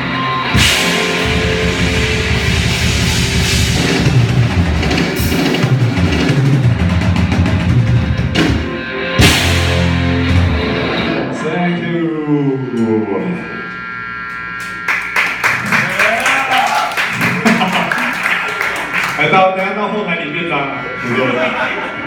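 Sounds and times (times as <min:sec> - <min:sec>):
rock band playing: 0:00.0 - 0:22.0
cymbal crashes: 0:00.4 - 0:06.1, 0:09.2 - 0:11.5.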